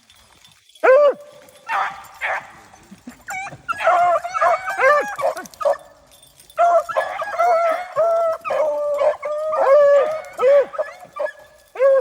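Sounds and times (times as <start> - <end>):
dog yelping: 3.3 - 5.8, 6.6 - 12.0.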